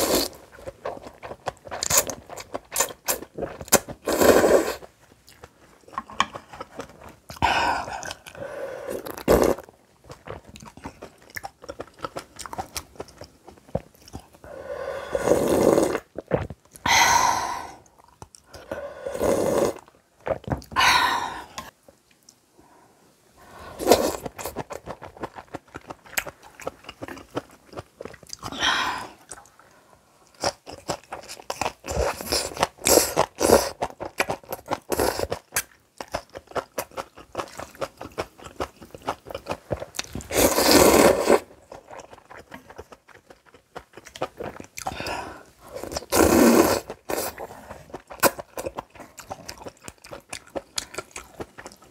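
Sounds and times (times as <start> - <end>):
wet chewing and crunching: 0.0 - 4.1, 4.7 - 8.4, 9.0 - 14.4, 16.0 - 16.9, 17.8 - 18.7, 23.8 - 28.6, 29.2 - 51.9
noodle slurps: 40.2 - 41.5, 45.7 - 48.4.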